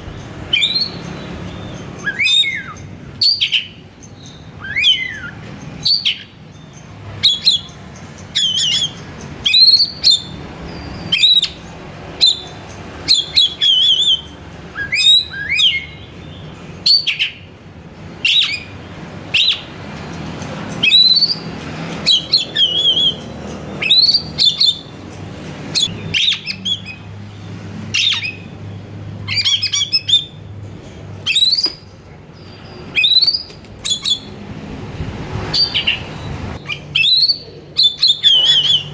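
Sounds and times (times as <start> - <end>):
bird singing whistled phrases: 0.5 - 6.3, 13.1 - 17.4, 22.1 - 23.2, 31.3 - 34.3, 35.6 - 38.9.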